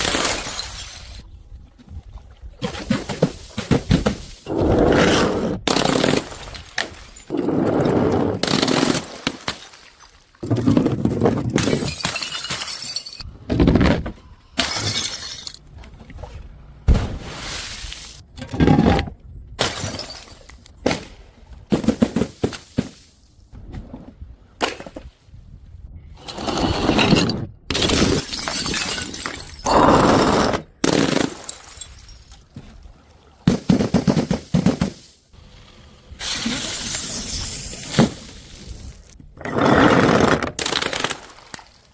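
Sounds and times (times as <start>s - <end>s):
glass bottles shattering: 0.0s - 1.2s, 5.7s - 7.3s, 11.5s - 13.3s, 14.6s - 15.6s, 19.6s - 20.6s, 26.9s - 32.5s, 36.2s - 38.4s.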